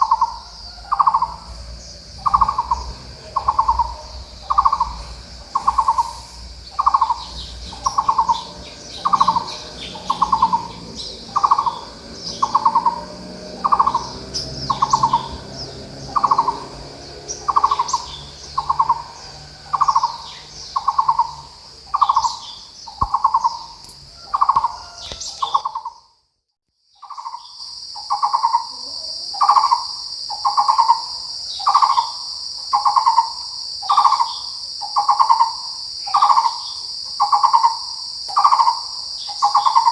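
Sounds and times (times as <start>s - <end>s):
high insect buzz: 0.0s - 25.6s
bird calling hollow notes: 0.0s - 25.9s
small high bird chirps: 0.0s - 26.1s, 26.9s - 39.9s.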